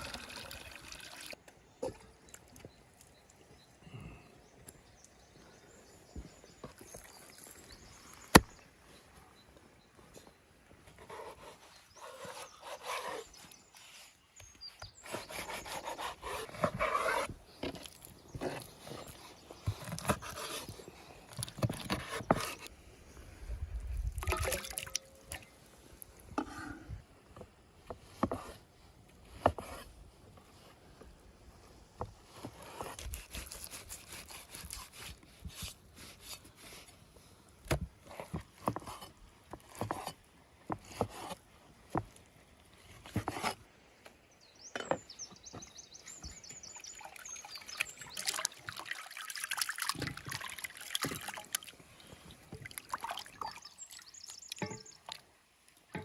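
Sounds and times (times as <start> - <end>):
liquid trickling: 0.0 - 1.4, 24.1 - 25.5, 46.8 - 55.2.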